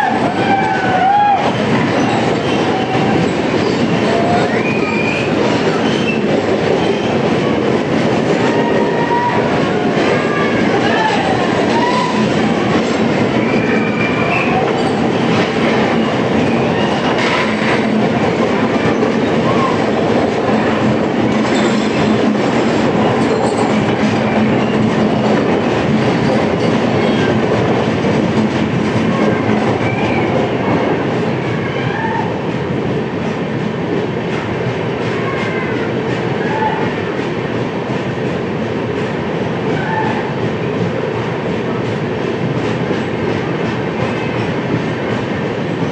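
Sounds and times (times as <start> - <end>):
train rumbling on track: 0.0 - 45.9
wheels clacking over rail joints: 1.6 - 30.8.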